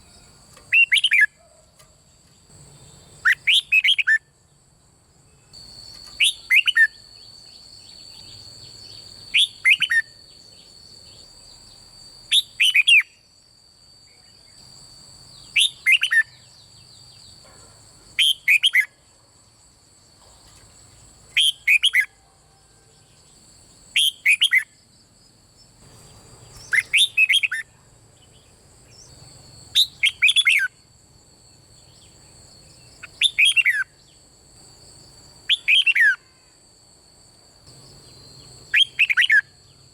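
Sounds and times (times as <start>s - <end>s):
faint high-pitched whine: 0.0s - 39.9s
bird singing whistled phrases: 0.7s - 1.4s, 3.2s - 4.3s, 6.1s - 7.3s, 9.3s - 10.4s, 12.3s - 13.2s, 15.4s - 16.5s, 18.2s - 18.9s, 21.4s - 22.2s, 24.0s - 24.7s, 26.6s - 27.7s, 29.8s - 30.7s, 33.0s - 33.9s, 35.5s - 36.2s, 38.7s - 39.5s.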